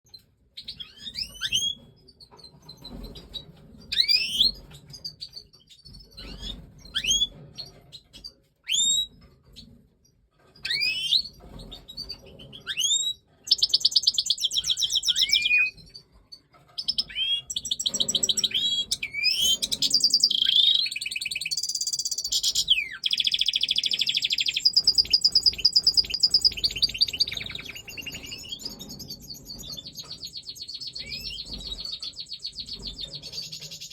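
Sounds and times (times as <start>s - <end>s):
goldfinches twittering song: 16.8s - 33.9s.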